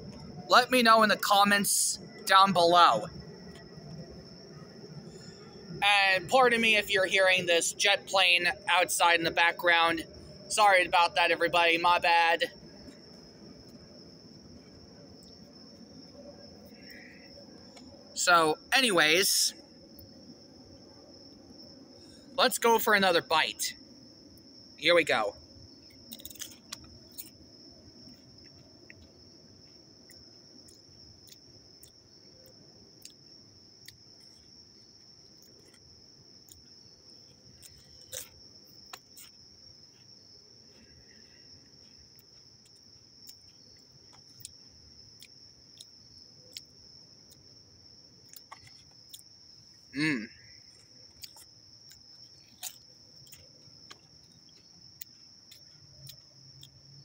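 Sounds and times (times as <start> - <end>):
crickets chirring: 0.0 - 57.0
crisp being chewed: 25.9 - 27.4, 35.2 - 36.7, 37.3 - 47.5, 48.2 - 49.3, 50.7 - 56.8.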